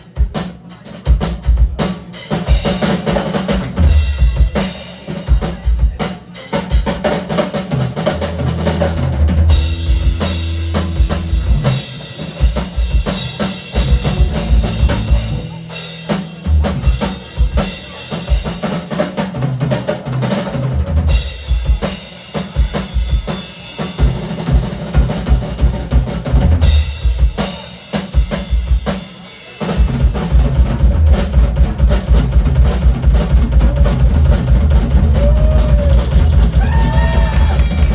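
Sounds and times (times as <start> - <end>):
drum kit beat: 0.0 - 37.9
live funk band playing: 0.0 - 37.9.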